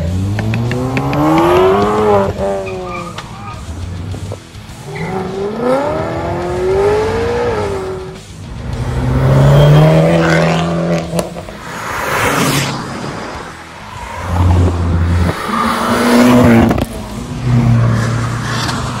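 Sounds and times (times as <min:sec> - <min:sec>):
car engines revving: 0:00.0 - 0:19.0
car rushing past: 0:06.6 - 0:19.0.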